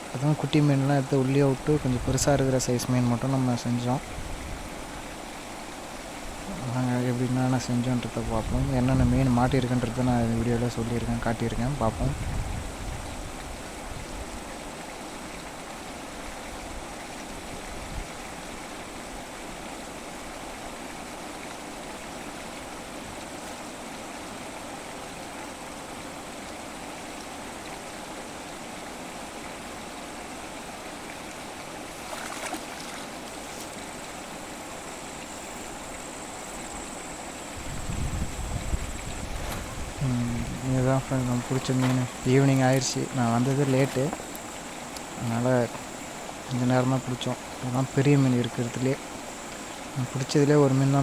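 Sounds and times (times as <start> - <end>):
flowing water rushing: 0.0 - 51.0.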